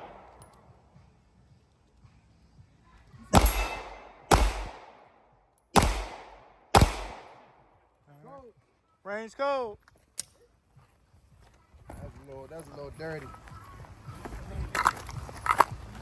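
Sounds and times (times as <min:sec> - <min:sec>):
handgun shots echoing: 0:00.0 - 0:00.6, 0:03.3 - 0:07.6.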